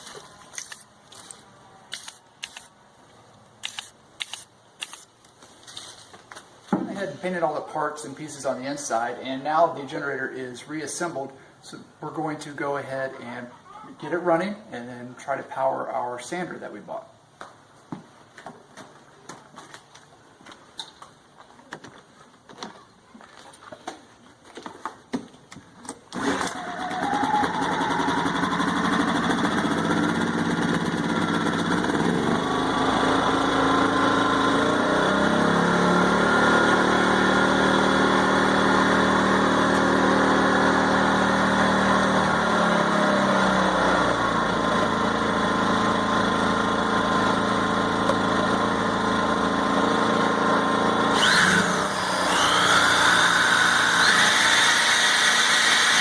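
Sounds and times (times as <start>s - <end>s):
electric sander whine: 26.2s - 56.0s
generator engine running: 26.2s - 56.0s.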